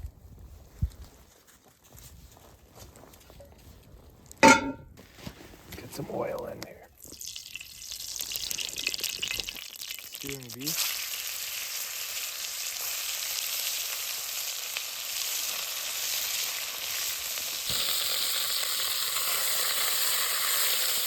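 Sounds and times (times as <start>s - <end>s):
beef sizzling in hot oil: 7.0s - 21.0s.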